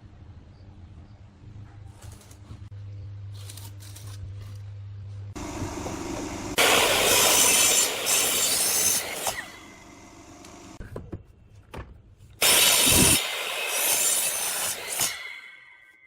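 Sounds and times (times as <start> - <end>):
power tool working wood: 5.4 - 10.8, 12.4 - 15.2.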